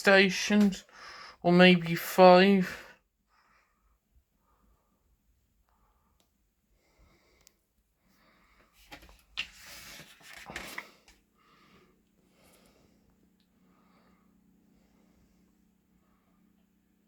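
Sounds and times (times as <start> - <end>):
paper pages rustling and turning: 8.6 - 11.2.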